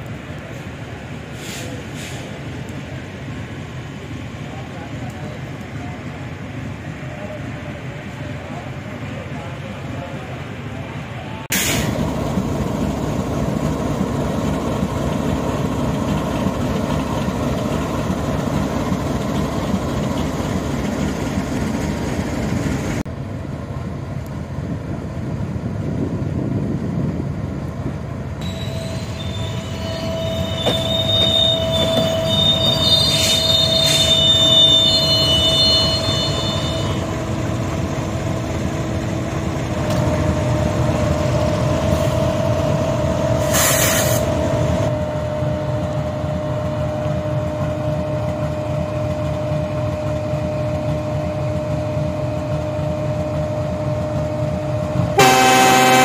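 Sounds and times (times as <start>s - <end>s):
diesel locomotive: 0.0s - 56.0s
train rumbling on rails: 0.0s - 56.0s
high-pitched wheel squeal: 28.4s - 37.2s.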